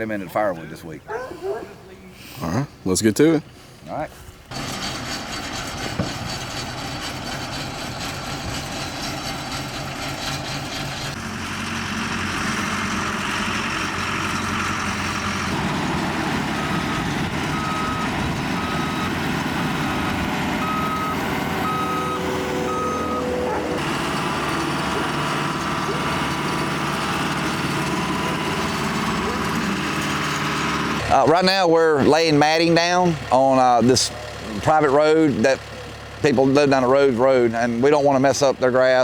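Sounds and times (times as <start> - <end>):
vehicle engine running: 4.5 - 39.0
back-up alarm beeping: 16.6 - 19.3, 20.6 - 23.8.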